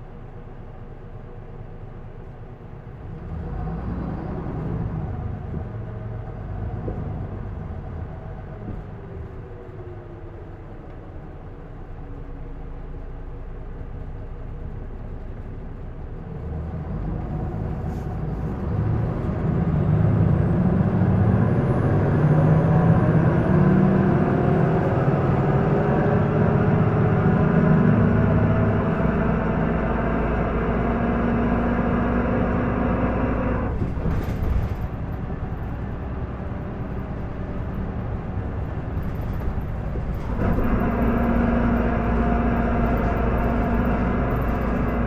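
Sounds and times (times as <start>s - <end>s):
bus diesel engine revving: 3.0s - 10.5s, 16.4s - 45.0s.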